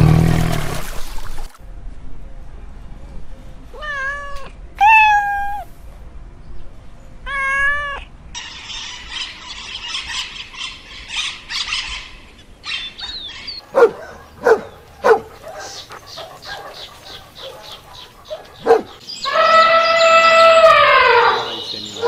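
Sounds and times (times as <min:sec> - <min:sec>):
cat meowing: 0:03.8 - 0:05.7, 0:07.3 - 0:08.1
budgerigars chattering and chirping: 0:08.4 - 0:13.6, 0:15.4 - 0:22.0.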